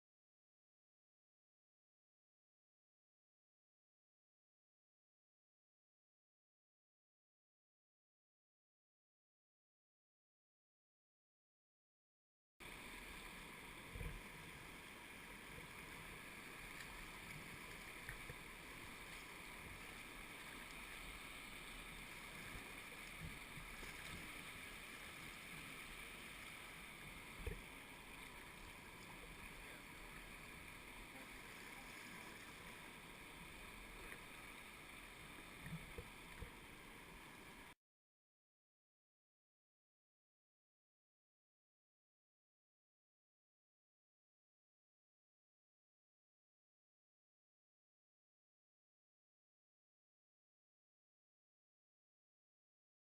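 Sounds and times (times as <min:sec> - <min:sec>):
river water rushing: 0:12.6 - 0:37.6.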